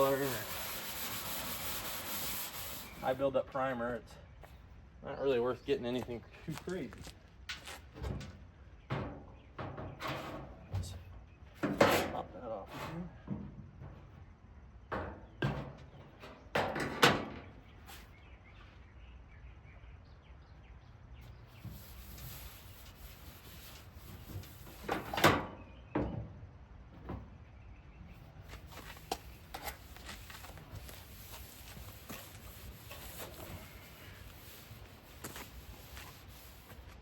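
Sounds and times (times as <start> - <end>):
metal clunks and knocks: 7.9 - 11.0, 13.1 - 14.2, 14.9 - 17.6.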